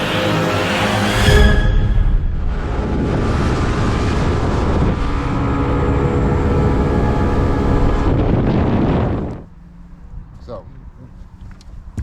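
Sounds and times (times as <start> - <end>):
water noise: 0.0 - 9.5
rushing wind: 0.0 - 10.3.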